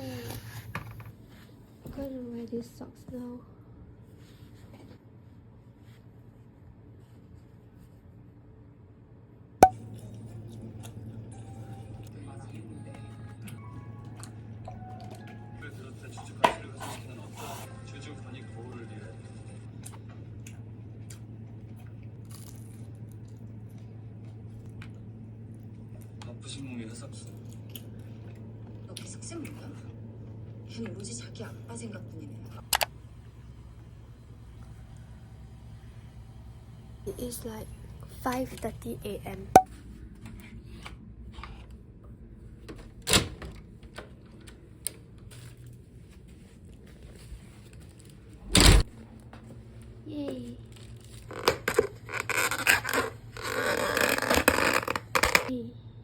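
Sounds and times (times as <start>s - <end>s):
steady low hum: 19.1s - 56.0s.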